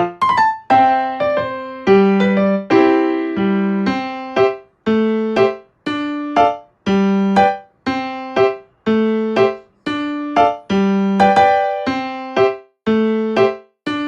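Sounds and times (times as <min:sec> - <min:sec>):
light piano-style keyboard tune: 0:00.0 - 0:14.0.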